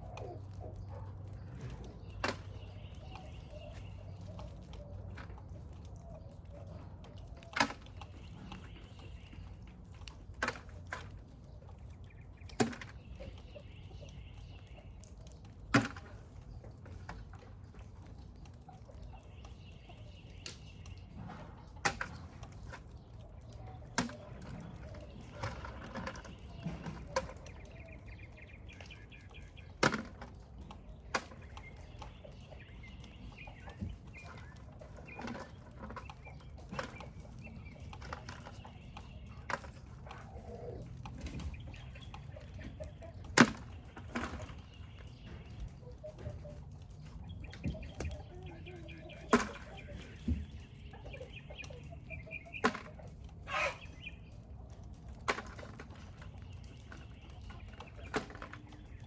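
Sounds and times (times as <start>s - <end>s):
chickens clucking: 0.0s - 59.0s
snails clicking into a bucket: 0.0s - 59.0s.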